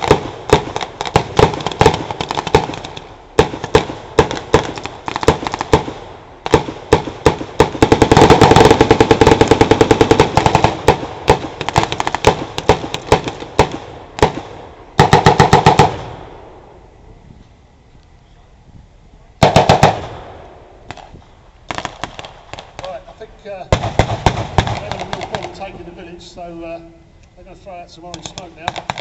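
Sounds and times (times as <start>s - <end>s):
blank gunfire shots and bursts: 0.0s - 16.2s, 19.4s - 20.3s, 23.7s - 25.7s, 28.1s - 29.0s.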